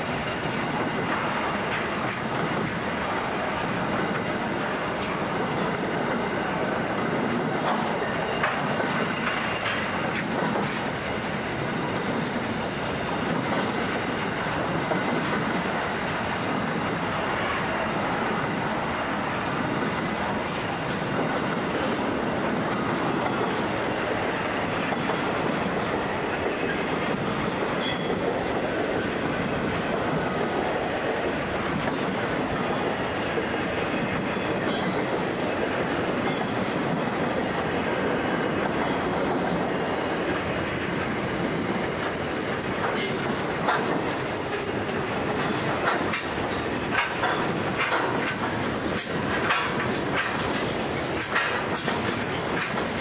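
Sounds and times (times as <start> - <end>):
freight train rumbling past: 0.0 - 53.0.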